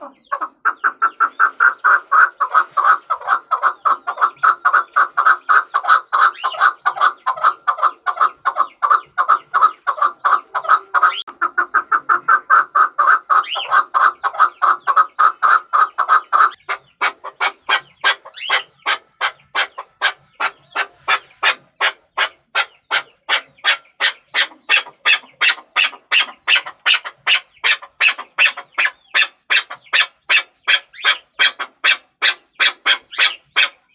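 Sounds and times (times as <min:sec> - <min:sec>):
partridge clucking calls: 0:00.0 - 0:33.9.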